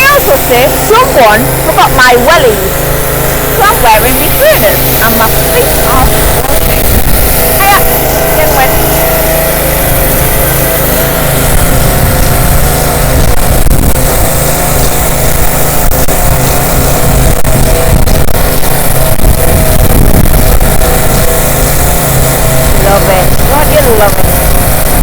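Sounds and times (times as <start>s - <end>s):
pressure washer engine humming: 0.0s - 25.0s
water jet hissing on concrete: 0.0s - 25.0s.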